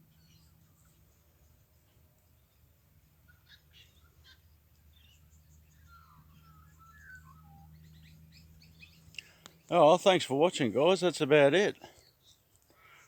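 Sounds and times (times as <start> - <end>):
faint bird calls: 3.2 - 9.7.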